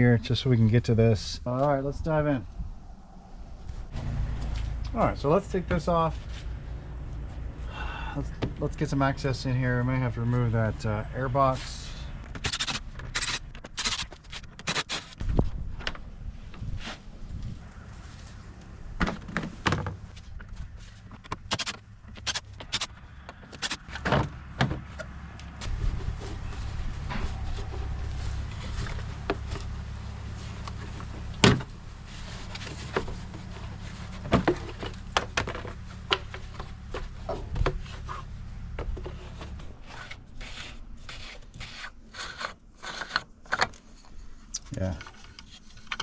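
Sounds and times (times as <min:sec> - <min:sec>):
plastic parts clicking and knocking: 0:44.8 - 0:46.0.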